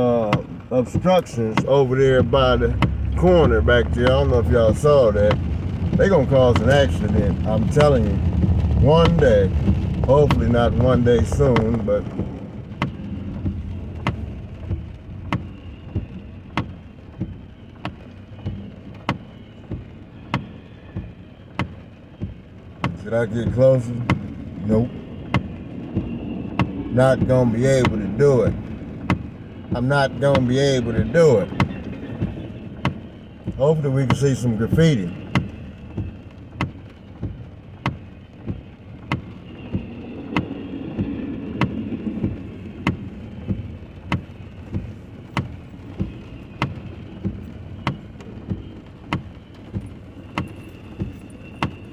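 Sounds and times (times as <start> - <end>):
engine and road rumble: 0.0 - 51.9
rain: 0.0 - 51.9
windshield wipers ticking: 0.0 - 51.9
car indicator clicking: 41.6 - 49.3, 50.3 - 51.8.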